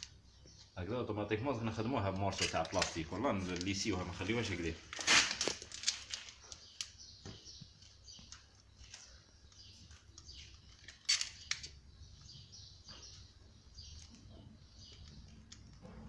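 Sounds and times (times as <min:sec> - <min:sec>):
clicks and scrapes of hand work: 0:07.8 - 0:11.8.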